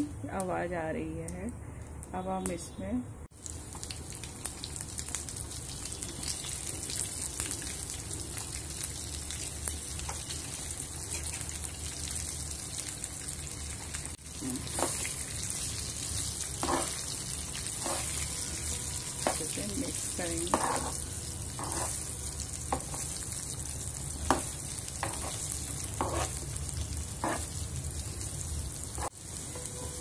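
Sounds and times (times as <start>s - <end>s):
mango slices sizzling in oil: 3.3s - 30.0s.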